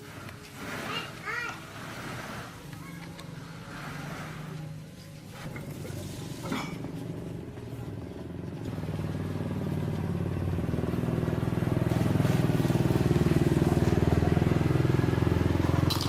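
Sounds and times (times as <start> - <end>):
small engine running: 3.5 - 16.0.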